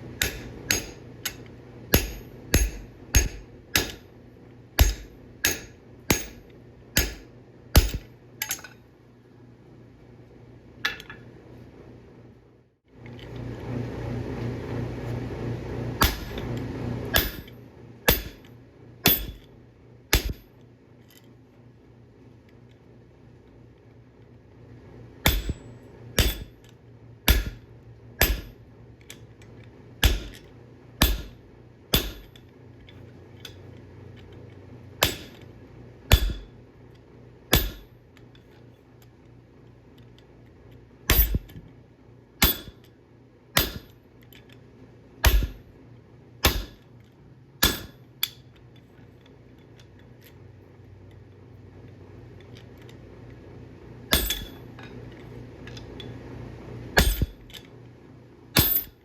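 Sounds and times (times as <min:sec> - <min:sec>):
steady low hum: 0:00.0 - 0:59.0
hammer striking steel on anvil: 0:00.1 - 0:04.1, 0:04.8 - 0:08.7, 0:16.0 - 0:16.5, 0:17.1 - 0:19.5, 0:20.1 - 0:20.5, 0:25.2 - 0:26.6, 0:27.3 - 0:28.6, 0:30.0 - 0:32.4, 0:35.0 - 0:35.5, 0:36.1 - 0:36.6, 0:37.5 - 0:38.0, 0:41.1 - 0:41.6, 0:42.4 - 0:42.8, 0:43.6 - 0:44.0, 0:45.2 - 0:45.6, 0:46.4 - 0:46.9, 0:47.6 - 0:48.4, 0:54.1 - 0:54.7, 0:57.0 - 0:57.4, 0:58.6 - 0:59.0.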